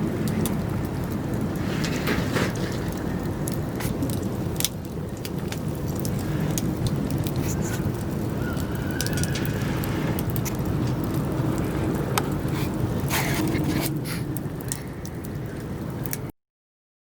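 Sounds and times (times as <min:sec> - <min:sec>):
campfire crackling and popping: 0:00.0 - 0:16.3.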